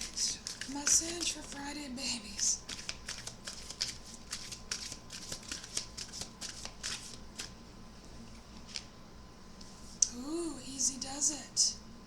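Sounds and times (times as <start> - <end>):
cards being shuffled: 0.0 - 1.6, 2.4 - 7.6, 8.4 - 8.9.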